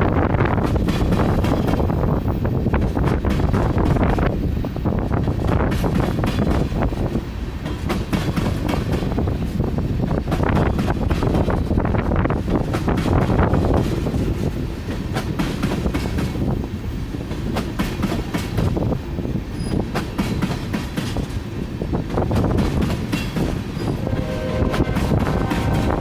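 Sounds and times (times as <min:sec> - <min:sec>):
train low rumble: 0:20.4 - 0:26.0.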